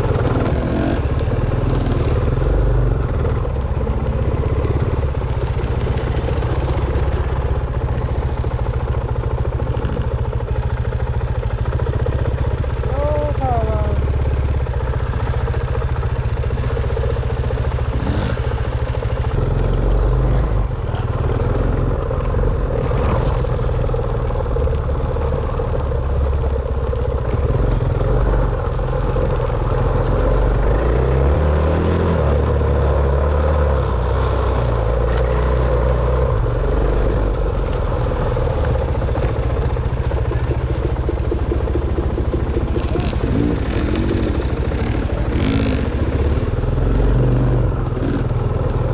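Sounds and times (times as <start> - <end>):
dirt bike engine revving: 0.0 - 5.0, 17.7 - 23.3, 42.4 - 48.9.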